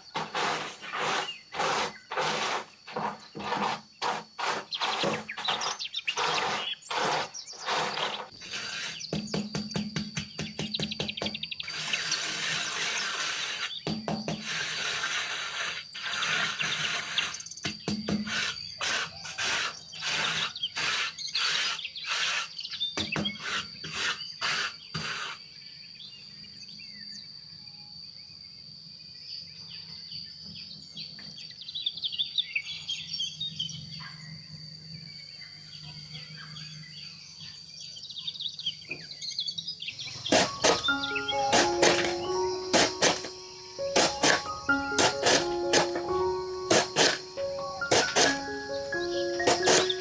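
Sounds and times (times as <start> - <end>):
repeated manual work strokes: 0.0 - 9.4, 40.0 - 50.0
birds chirping: 40.0 - 50.0
insect drone: 40.0 - 50.0.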